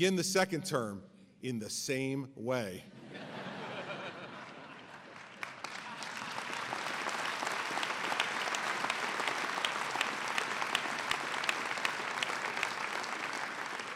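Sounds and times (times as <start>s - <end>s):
audience applauding: 4.4s - 13.9s.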